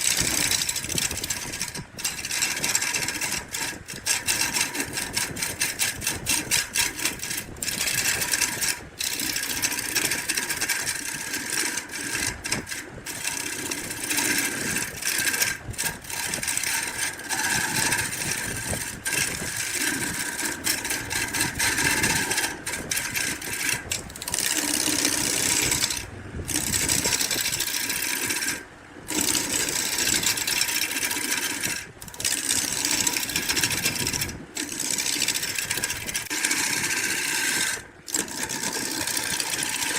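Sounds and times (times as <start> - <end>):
small power tool working wood: 0.0 - 39.9.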